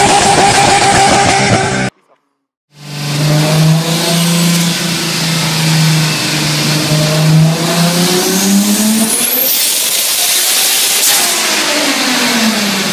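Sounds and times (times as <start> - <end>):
car engine revving: 2.7 - 12.9
loud rushing hiss: 4.1 - 12.9.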